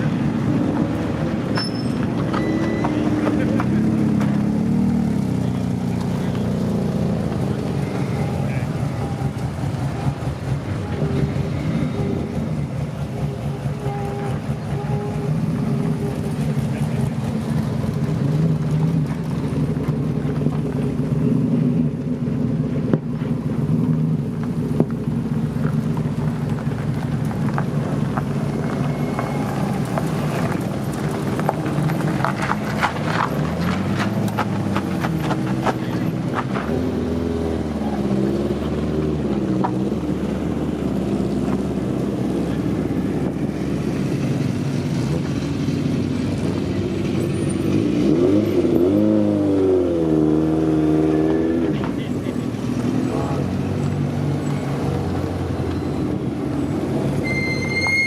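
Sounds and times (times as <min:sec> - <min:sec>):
car engines running: 0:00.0 - 0:58.0
engine revving: 0:28.6 - 0:58.0.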